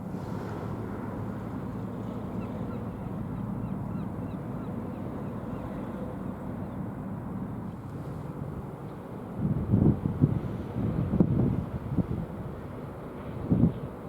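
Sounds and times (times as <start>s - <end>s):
ship engines rumbling: 0.0s - 7.6s
wind on microphone: 9.4s - 12.6s, 13.3s - 13.9s.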